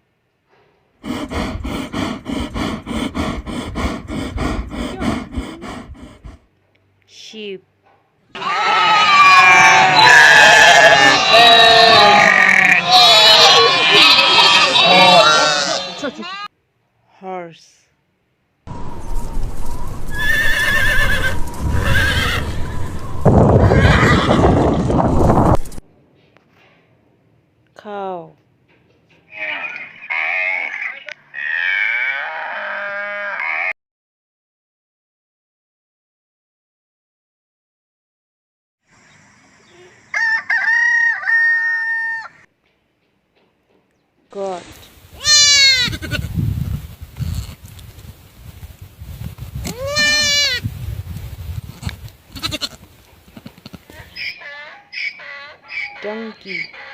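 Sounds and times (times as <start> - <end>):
yak grunting: 1.0 - 6.5, 8.4 - 16.0
horse whinnying: 8.3 - 15.8, 20.1 - 23.0, 23.6 - 24.8
rough noisy rustle: 18.7 - 25.9, 44.4 - 53.9.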